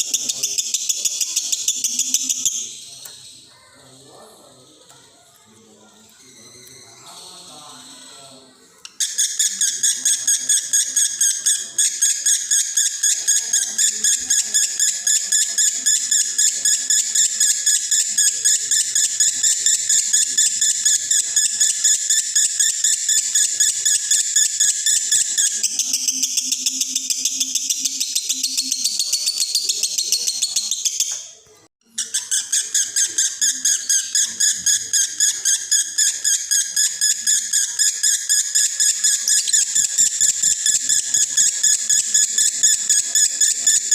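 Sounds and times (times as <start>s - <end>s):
lovebird chattering trill: 0.0s - 3.8s, 8.9s - 31.2s, 31.9s - 43.9s.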